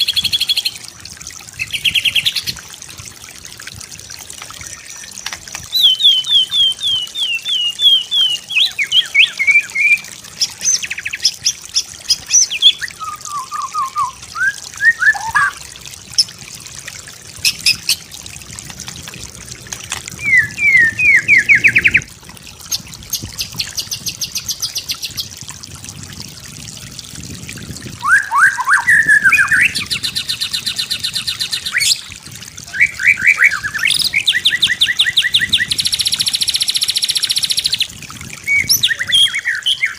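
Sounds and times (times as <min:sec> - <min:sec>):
bird singing whistled song: 0:05.7 - 0:10.0, 0:12.3 - 0:15.6, 0:20.2 - 0:22.1, 0:28.0 - 0:32.0, 0:32.7 - 0:37.7, 0:38.5 - 0:39.9.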